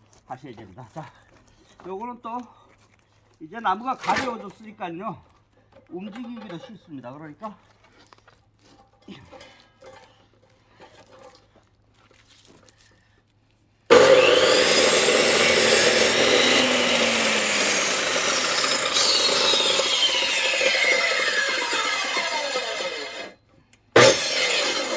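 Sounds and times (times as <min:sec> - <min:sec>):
chainsaw cutting log: 0:13.9 - 0:23.4, 0:24.0 - 0:24.9.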